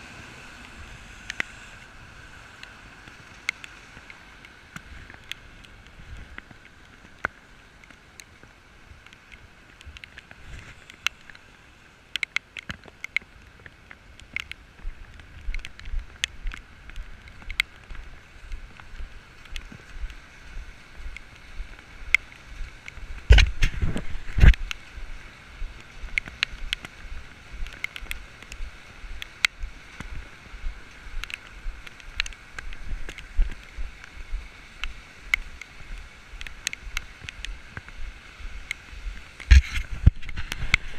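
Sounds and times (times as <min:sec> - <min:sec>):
raindrops ticking on camera housing: 0:00.2 - 0:40.9
wind buffeting microphone: 0:14.7 - 0:40.9.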